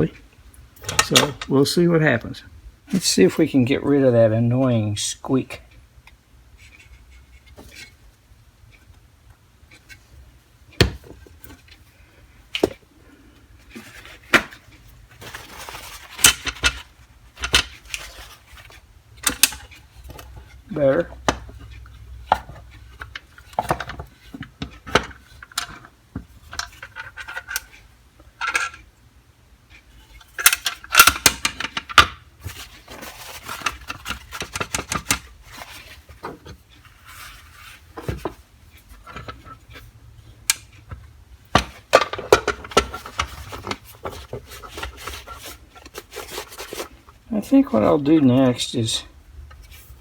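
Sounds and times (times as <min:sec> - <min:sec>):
small parts and tools clinking: 0:00.8 - 0:01.5.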